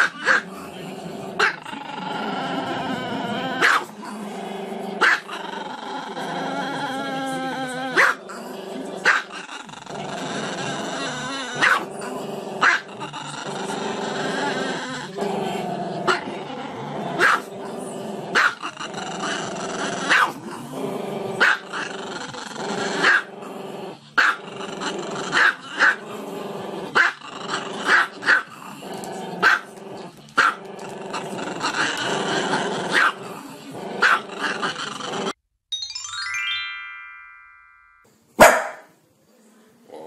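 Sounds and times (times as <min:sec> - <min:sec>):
dog barking: 0:00.0 - 0:00.4, 0:03.6 - 0:03.9, 0:05.0 - 0:05.3, 0:08.0 - 0:08.2, 0:09.0 - 0:09.3, 0:11.6 - 0:11.9, 0:12.6 - 0:12.9, 0:17.2 - 0:17.5, 0:18.4 - 0:18.6, 0:20.1 - 0:20.4, 0:21.4 - 0:21.6, 0:23.0 - 0:23.3, 0:24.2 - 0:24.4, 0:27.9 - 0:28.5, 0:29.4 - 0:29.7, 0:32.9 - 0:33.2, 0:34.0 - 0:34.2, 0:38.4 - 0:38.9.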